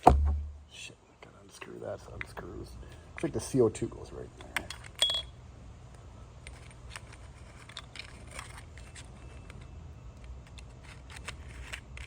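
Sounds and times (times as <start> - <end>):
low steady hum: 0.0 - 12.0
clicks and scrapes of handling: 6.4 - 12.0.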